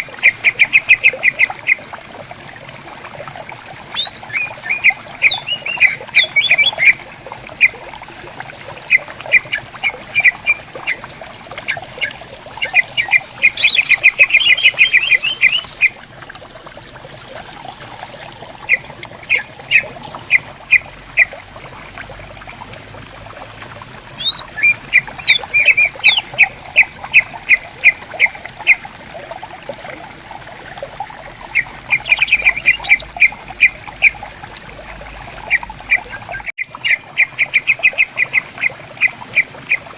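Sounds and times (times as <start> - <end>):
stream murmuring: 0.0 - 39.9
birds calling with trills: 3.9 - 7.0, 8.9 - 11.0, 11.6 - 15.9, 18.7 - 21.3, 24.2 - 28.8, 31.5 - 34.2, 35.5 - 39.8.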